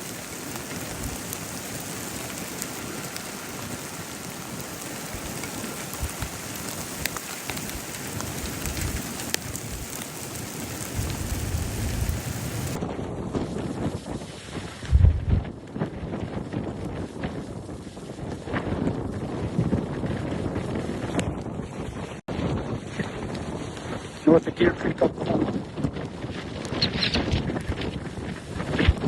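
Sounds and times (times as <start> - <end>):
heavy rain hitting a surface: 0.0 - 12.8
wind rumble on microphone: 0.0 - 29.0.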